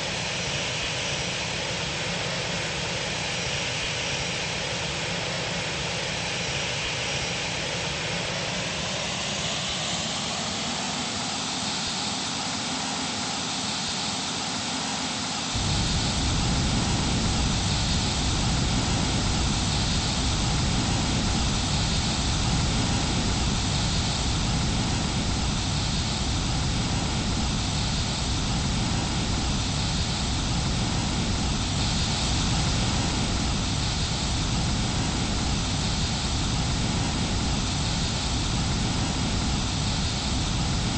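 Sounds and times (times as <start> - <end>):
jet engines roaring: 0.0 - 40.9
deep rumble: 15.6 - 40.9.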